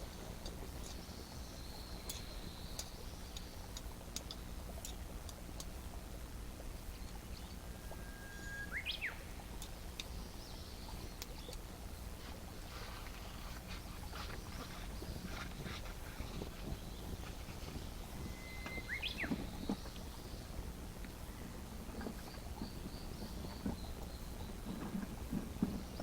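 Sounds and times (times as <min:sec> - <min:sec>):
low steady rumble: 0:00.0 - 0:26.0
bird singing: 0:07.0 - 0:11.6, 0:13.7 - 0:25.0.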